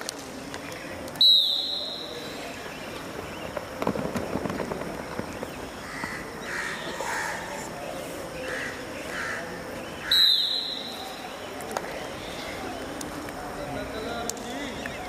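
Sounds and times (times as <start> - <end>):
high-pitched whistle blast: 1.2 - 2.3, 10.1 - 11.0
bird calling: 5.1 - 13.0.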